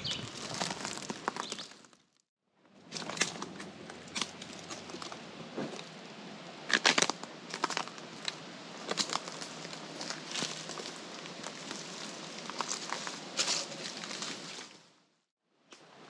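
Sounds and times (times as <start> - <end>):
footsteps crunching dry leaves: 0.0 - 2.0, 6.7 - 14.9.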